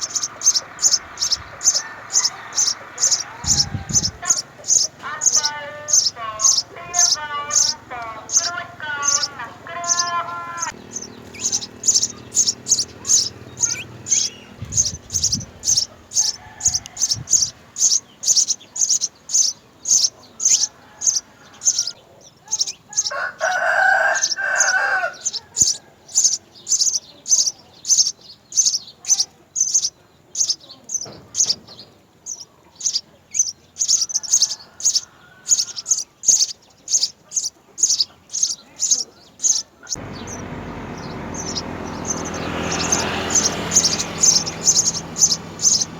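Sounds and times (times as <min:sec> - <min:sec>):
low bird call: 0:00.0 - 0:26.8
sparrows chirping: 0:00.0 - 0:45.9.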